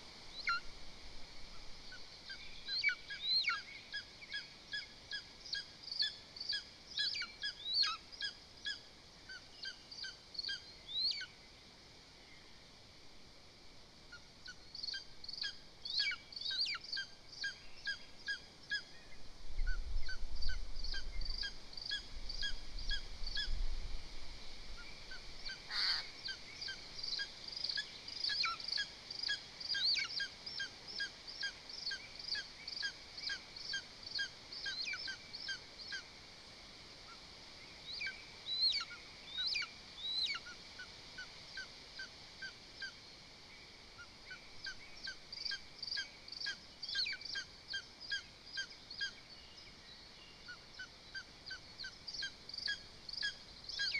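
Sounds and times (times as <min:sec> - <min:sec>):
eagle yelping calls: 0:25.7 - 0:26.1.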